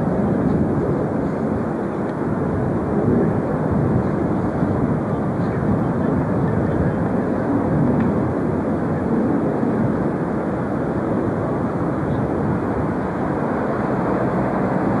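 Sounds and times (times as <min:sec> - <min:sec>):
jet engine noise: 0:00.0 - 0:15.0.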